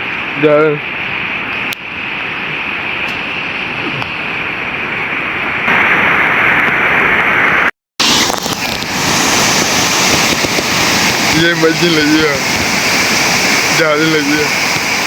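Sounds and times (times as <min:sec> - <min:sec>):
flowing water rushing: 0:08.0 - 0:15.0.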